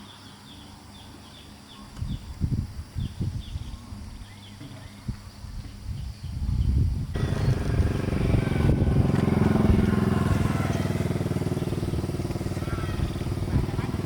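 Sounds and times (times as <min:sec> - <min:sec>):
engine starting and running: 0:07.2 - 0:14.0.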